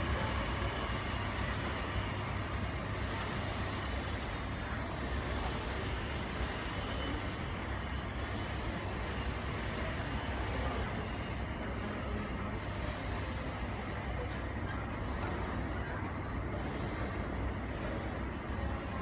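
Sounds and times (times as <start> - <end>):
airport apron rumble and hiss: 0.0 - 19.0.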